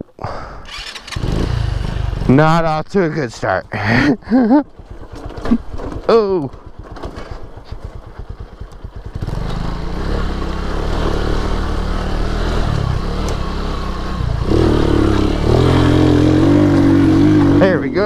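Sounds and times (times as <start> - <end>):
motorcycle engine revving: 0.7 - 2.8, 3.4 - 18.0.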